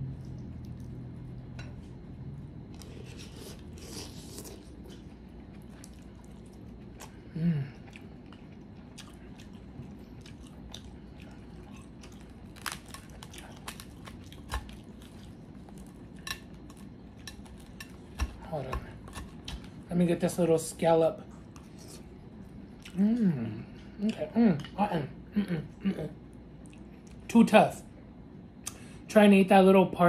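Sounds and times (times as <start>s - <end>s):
close chewing: 2.7s - 19.9s
person humming: 7.3s - 7.8s, 23.0s - 24.6s.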